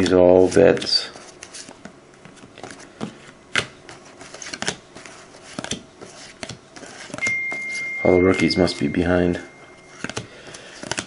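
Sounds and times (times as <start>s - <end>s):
trading cards clicking and sliding: 0.4s - 8.0s.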